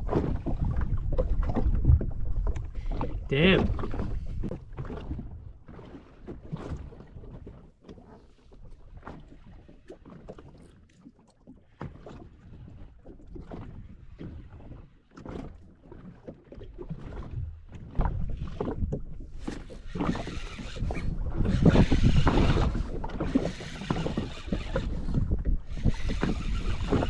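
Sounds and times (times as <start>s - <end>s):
wind on microphone: 0.0s - 5.6s, 18.0s - 27.0s
water slapping against hull: 0.0s - 27.0s.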